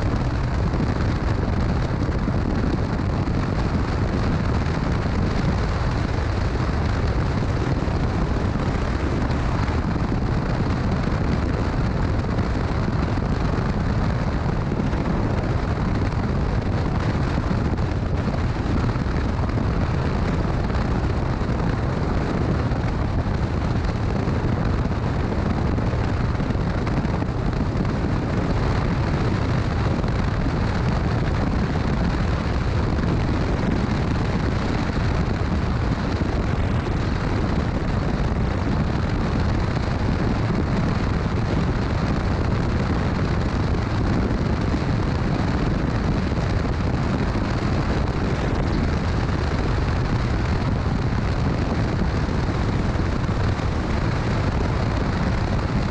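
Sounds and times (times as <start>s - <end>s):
motorcycle engine rumble: 0.0s - 55.9s
wind buffeting microphone: 0.0s - 55.9s.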